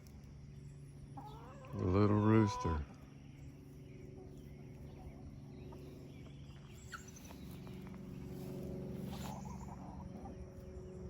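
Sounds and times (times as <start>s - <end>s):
steady low hum: 0.0s - 11.0s
faint hen calls: 1.2s - 3.0s.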